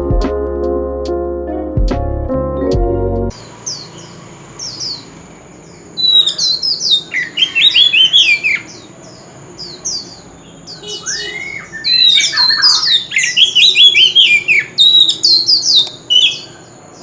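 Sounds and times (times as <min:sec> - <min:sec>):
bird singing whistles: 0:06.0 - 0:08.7, 0:10.7 - 0:16.6.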